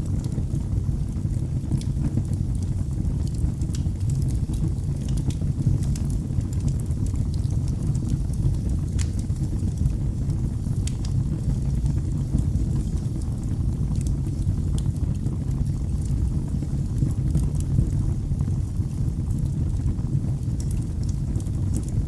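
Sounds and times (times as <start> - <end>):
fire crackling and popping: 0.0 - 22.0
low rumble of flames: 0.0 - 22.0.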